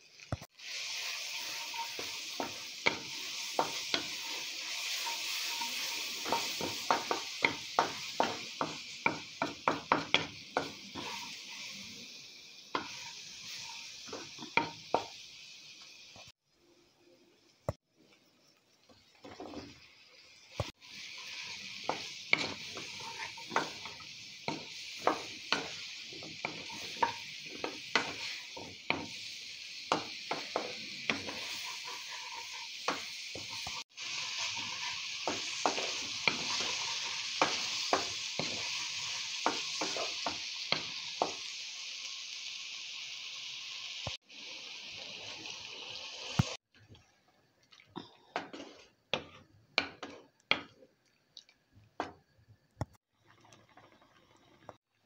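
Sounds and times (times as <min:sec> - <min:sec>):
vegetables sizzling in oil: 0:00.0 - 0:46.9, 0:48.3 - 0:55.0
spatula scraping a pan: 0:00.6 - 0:11.8, 0:20.6 - 0:41.4, 0:48.3 - 0:50.7.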